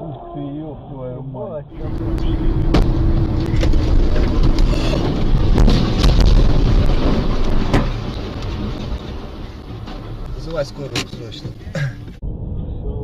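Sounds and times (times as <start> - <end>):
vehicle rumbling: 0.0 - 13.0
wind buffeting microphone: 1.7 - 10.3
sharp knocks and bangs: 1.9 - 11.6.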